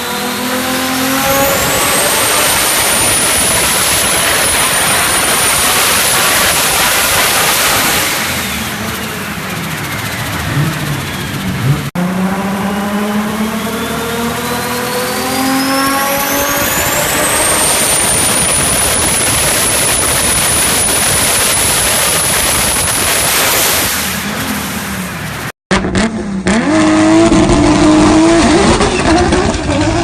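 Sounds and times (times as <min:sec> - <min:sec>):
car engine accelerating hard: 0:00.0 - 0:30.0
turbo whistle: 0:13.1 - 0:23.9.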